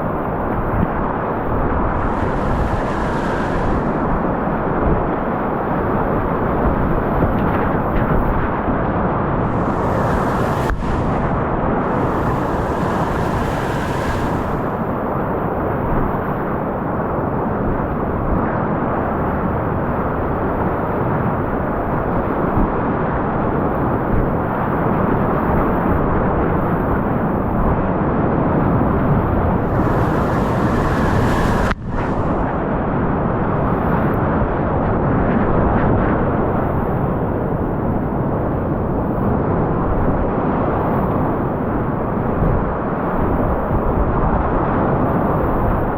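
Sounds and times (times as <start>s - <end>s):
muffled whitewater rapids rushing: 1.4s - 5.9s, 9.4s - 15.4s, 29.6s - 33.8s.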